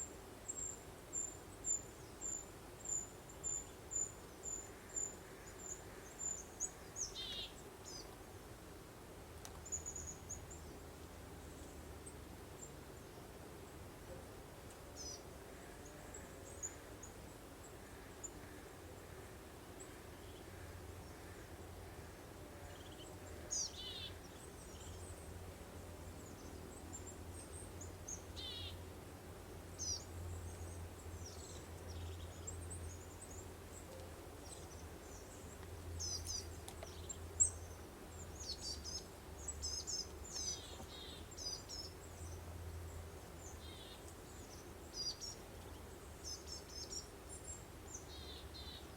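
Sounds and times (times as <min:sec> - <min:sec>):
songbirds chirping and trilling: 0:00.5 - 0:08.2, 0:14.7 - 0:25.4, 0:29.6 - 0:48.9.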